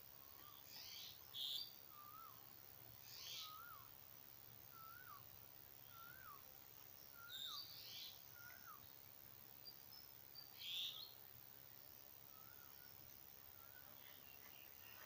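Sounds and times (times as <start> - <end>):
bird twittering chirps: 0.3 - 3.9, 4.7 - 6.4, 7.0 - 9.0, 9.6 - 11.2.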